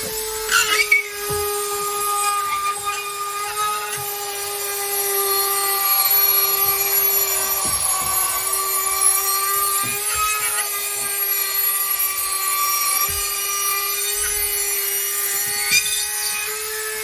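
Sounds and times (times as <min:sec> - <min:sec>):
power tool cutting drywall: 0:00.0 - 0:17.0.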